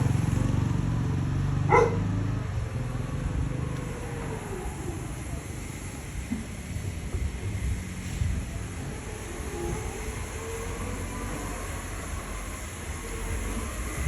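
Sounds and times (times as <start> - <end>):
dog barking: 1.7 - 2.1.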